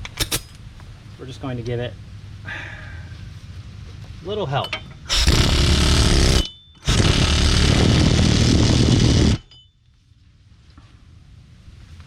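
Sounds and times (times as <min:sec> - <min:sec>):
pneumatic tool bursts: 0:05.1 - 0:09.5.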